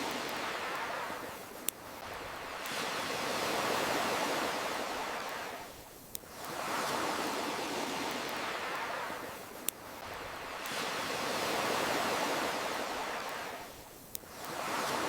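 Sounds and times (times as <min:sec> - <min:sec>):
campfire crackle pops: 0:00.0 - 0:03.0, 0:05.2 - 0:06.6, 0:08.1 - 0:10.9, 0:13.2 - 0:14.6
ocean waves washing in: 0:00.0 - 0:15.0.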